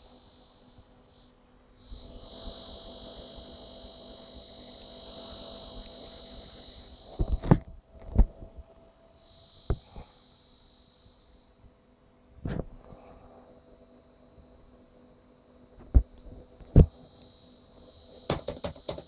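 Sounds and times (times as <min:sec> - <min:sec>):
laptop high-pitched buzzing whine: 0:00.0 - 0:19.0
knocks and clicks: 0:18.3 - 0:19.0.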